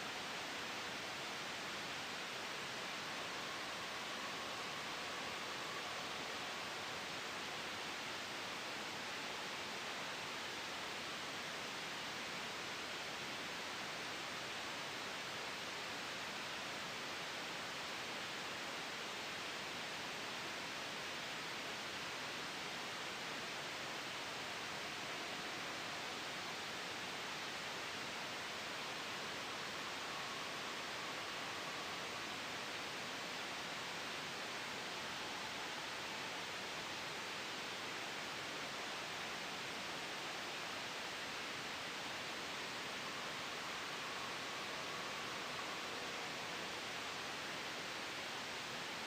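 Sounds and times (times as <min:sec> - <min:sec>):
white noise hiss: 0:00.0 - 0:49.0.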